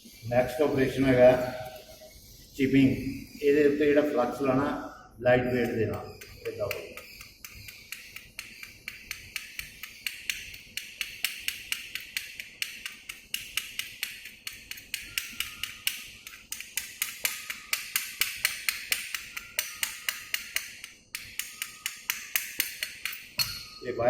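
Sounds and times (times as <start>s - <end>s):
chipping hammer tapping metal: 5.5s - 23.7s.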